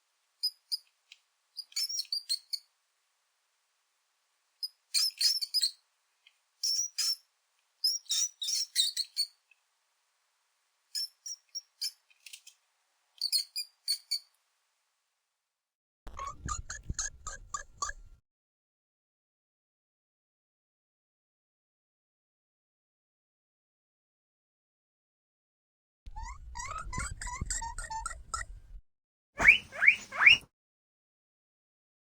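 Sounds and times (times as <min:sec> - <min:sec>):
mouse squeaks: 0:00.4 - 0:00.9, 0:01.6 - 0:02.7, 0:04.6 - 0:05.8, 0:06.6 - 0:09.4, 0:11.0 - 0:12.6, 0:13.2 - 0:14.3, 0:16.1 - 0:18.2, 0:26.1 - 0:28.6, 0:29.4 - 0:30.5.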